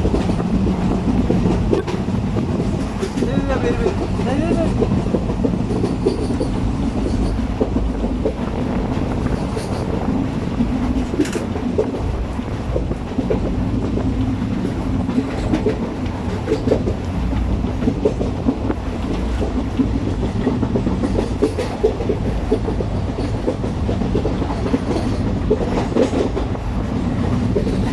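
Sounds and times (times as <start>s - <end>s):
clacks over rail joints: 0.0s - 27.9s
train wheels rumbling: 0.0s - 27.9s.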